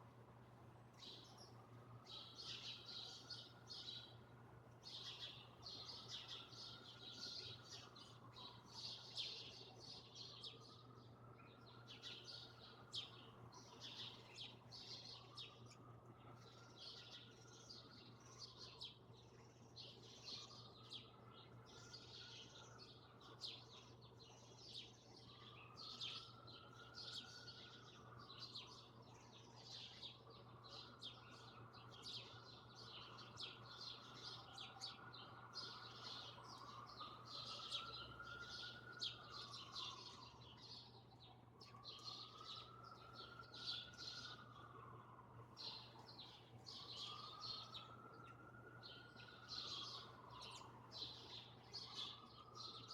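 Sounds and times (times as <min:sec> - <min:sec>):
small birds chirping: 0:00.9 - 0:52.9.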